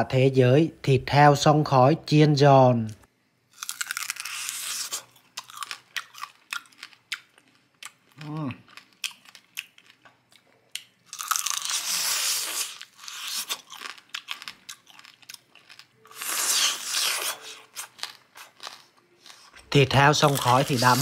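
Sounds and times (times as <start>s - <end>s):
crunching crispy bacon: 3.5s - 19.4s, 20.0s - 21.0s.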